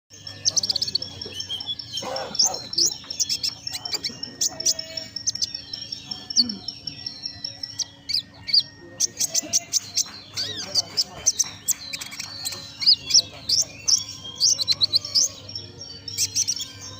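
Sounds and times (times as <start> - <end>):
songbird singing: 0.1 - 16.9.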